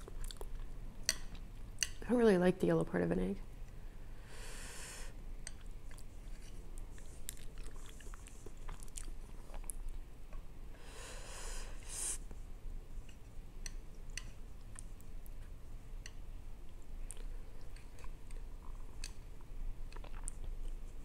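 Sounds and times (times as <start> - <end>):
wet chewing with clicks: 0.0 - 2.0, 5.5 - 10.0, 13.1 - 21.0.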